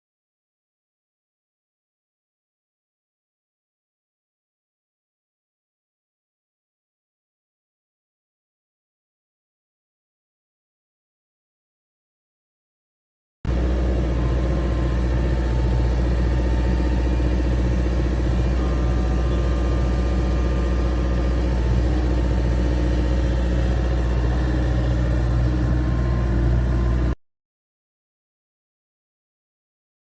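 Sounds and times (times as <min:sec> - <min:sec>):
vehicle engine idling: 0:13.5 - 0:27.2.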